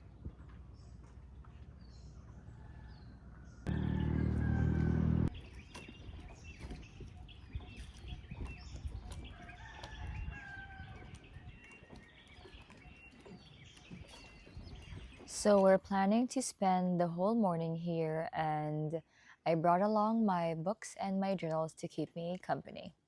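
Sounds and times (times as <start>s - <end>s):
rooster crowing: 2.5s - 5.3s
small birds chirping: 5.2s - 15.5s.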